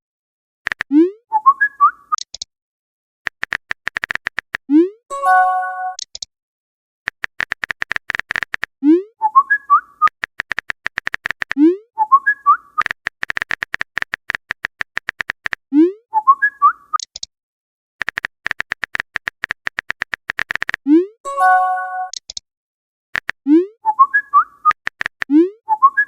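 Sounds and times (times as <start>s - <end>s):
fast typing clicks: 0.7s - 0.9s, 3.3s - 4.6s, 7.1s - 8.7s, 10.0s - 11.6s, 12.8s - 15.6s, 18.0s - 20.8s, 23.2s - 23.4s, 24.7s - 25.3s
whistled phrase: 1.3s - 2.2s, 9.2s - 10.1s, 12.0s - 12.9s, 16.1s - 17.0s, 23.8s - 24.8s, 25.4s - 26.0s.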